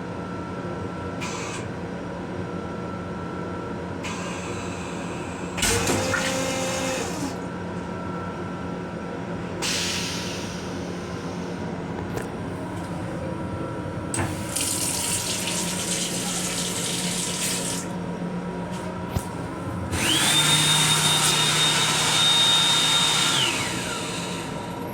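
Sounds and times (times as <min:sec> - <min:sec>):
water running: 0:14.2 - 0:18.0
motor whining: 0:19.8 - 0:24.7.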